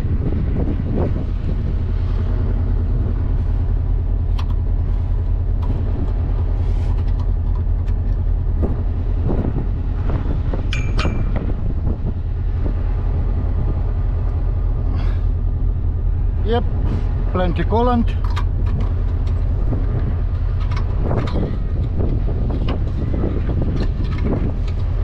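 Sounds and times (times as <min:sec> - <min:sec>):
diesel engine idling: 0:00.0 - 0:25.0
clicks and clanks in engine bay: 0:04.2 - 0:08.8, 0:10.6 - 0:12.0, 0:16.8 - 0:25.0.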